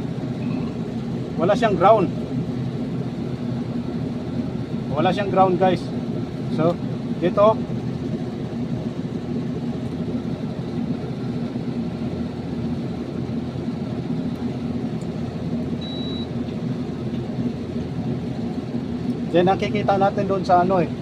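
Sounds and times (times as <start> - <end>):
low mechanical hum: 0.0 - 21.0
high-pitched electronic beep: 15.8 - 16.3.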